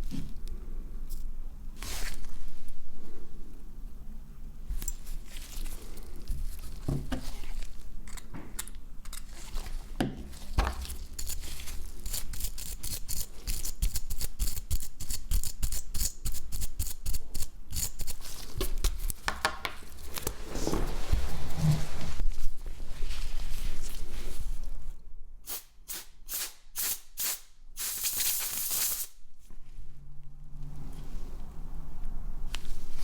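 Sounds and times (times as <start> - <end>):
low steady hum: 29.2 - 33.0.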